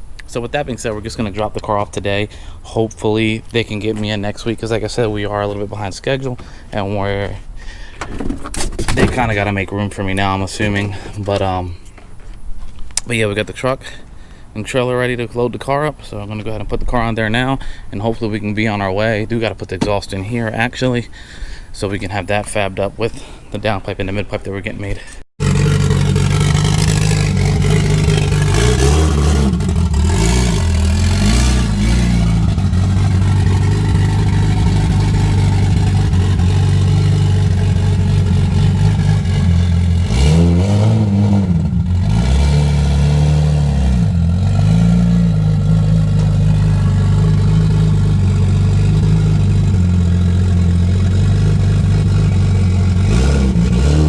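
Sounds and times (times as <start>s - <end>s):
vehicle engine revving: 25.4s - 54.0s.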